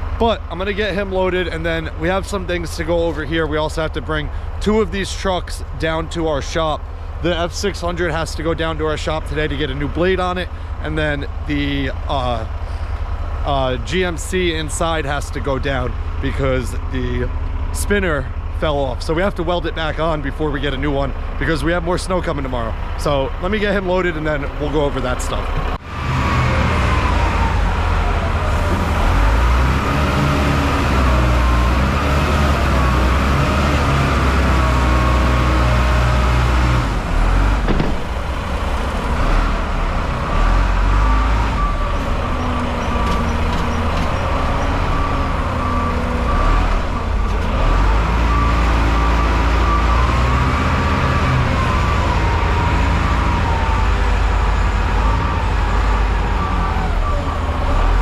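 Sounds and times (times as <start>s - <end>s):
diesel engine revving: 0.0s - 58.0s
reversing alarm beeping: 26.0s - 36.2s, 40.6s - 58.0s.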